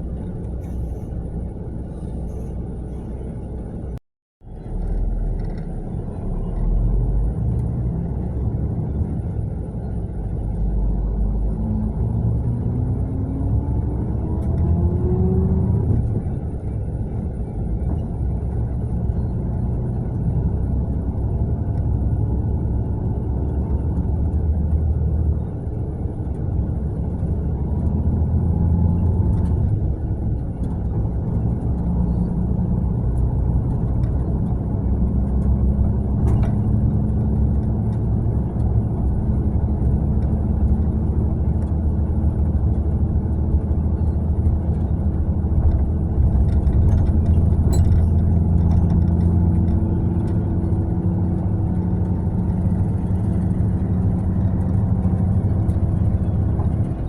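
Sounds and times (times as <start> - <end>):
diesel engine rumble: 0.0 - 57.0
road noise: 0.0 - 57.0.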